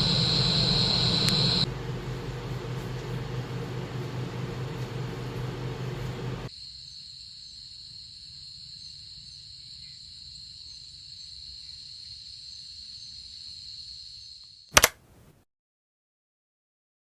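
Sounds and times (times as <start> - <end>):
crickets trilling: 0.0 - 6.5
faint low rumble: 0.0 - 6.5.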